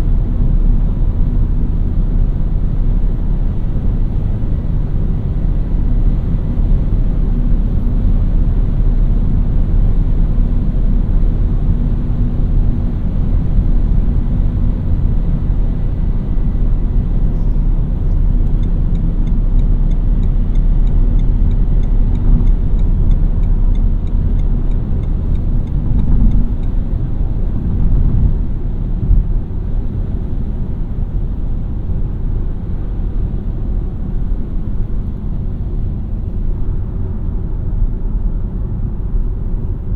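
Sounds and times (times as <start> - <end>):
car engine hum: 0.0 - 39.9
light regular ticking: 18.1 - 26.8.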